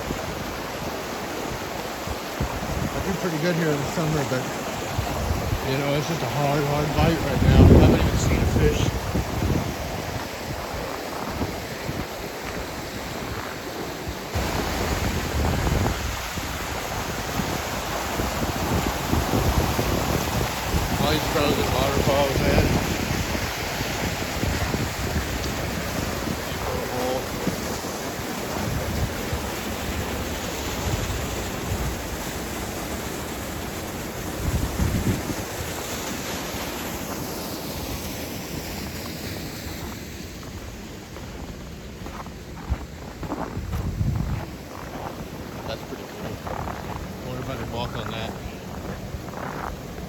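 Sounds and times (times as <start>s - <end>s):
creek water rushing: 0.0s - 50.0s
wind buffeting microphone: 4.4s - 13.6s, 14.3s - 32.6s, 34.2s - 36.0s, 39.8s - 50.0s.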